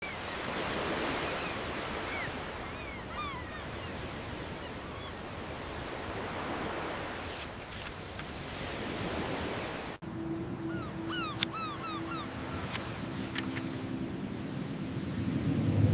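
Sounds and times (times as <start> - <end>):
wind: 0.0 - 15.9
surf rushing: 11.0 - 15.9.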